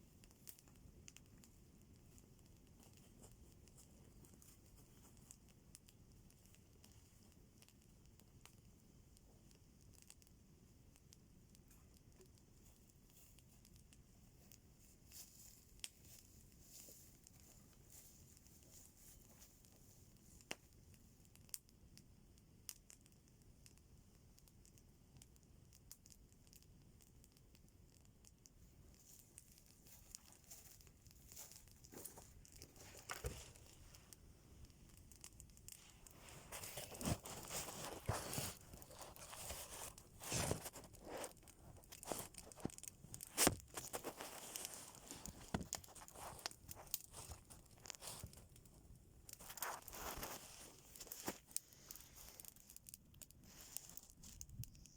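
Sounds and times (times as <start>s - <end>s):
material tearing and crumpling: 35.8s - 48.5s, 49.3s - 51.6s.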